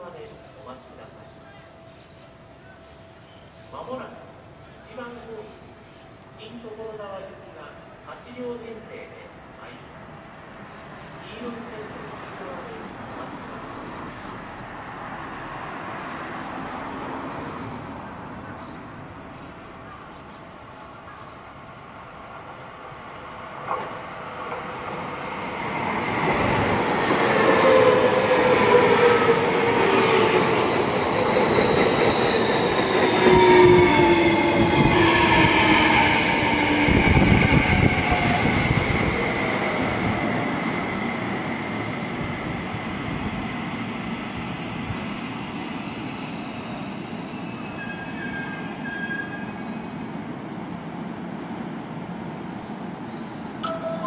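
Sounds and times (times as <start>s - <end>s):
high wheel squeal: 25.5s - 35.5s, 44.4s - 45.3s, 47.2s - 50.2s.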